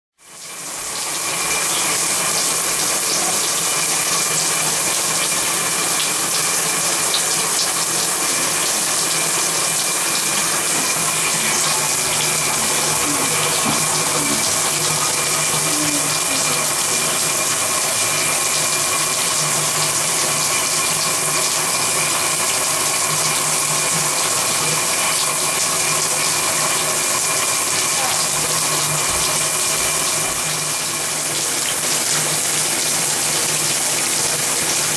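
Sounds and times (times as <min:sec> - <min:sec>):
shower spray hissing: 0:00.6 - 0:21.9.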